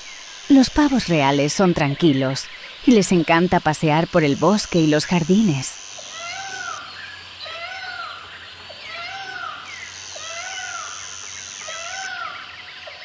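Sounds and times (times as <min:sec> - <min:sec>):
high insect buzz: 0:00.0 - 0:13.0
peacock calling: 0:04.3 - 0:13.0.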